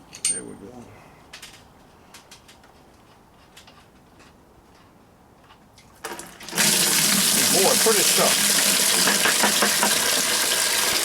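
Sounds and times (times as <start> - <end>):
coolant gushing into bucket: 6.1 - 11.0.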